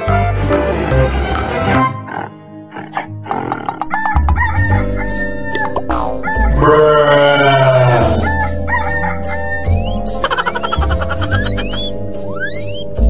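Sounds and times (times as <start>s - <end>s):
background music: 0.0s - 13.0s
long falling animal call: 9.6s - 12.8s.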